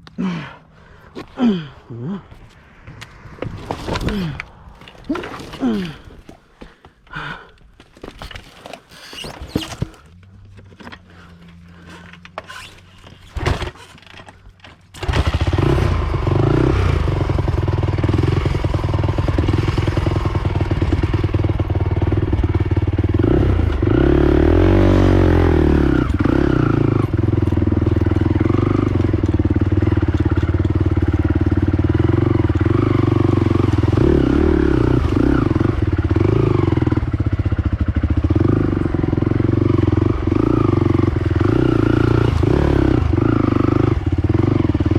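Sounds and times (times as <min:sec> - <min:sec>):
atv engine running: 0:15.0 - 0:44.9.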